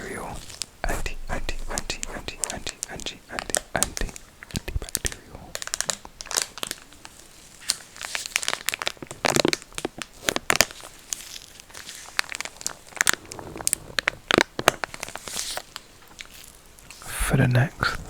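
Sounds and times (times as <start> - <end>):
plastic packet crinkling: 2.6 - 16.6.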